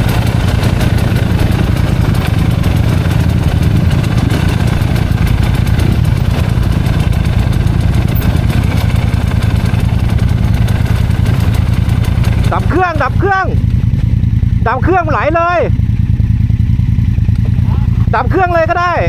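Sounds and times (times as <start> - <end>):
dirt bike engine idling: 0.0 - 19.0.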